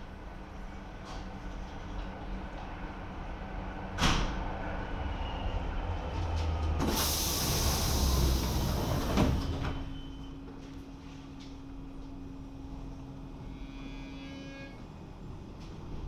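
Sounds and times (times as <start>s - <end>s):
air hissing: 6.8s - 9.1s.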